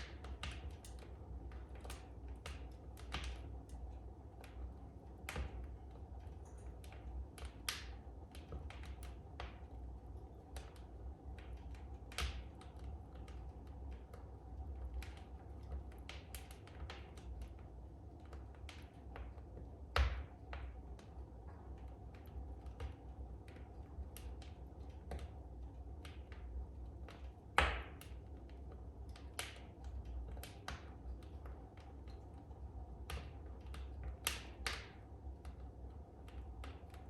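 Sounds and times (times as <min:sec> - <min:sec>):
wood fire crackling: 0:00.0 - 0:37.0
loud fire pops: 0:19.9 - 0:20.8, 0:27.6 - 0:28.2.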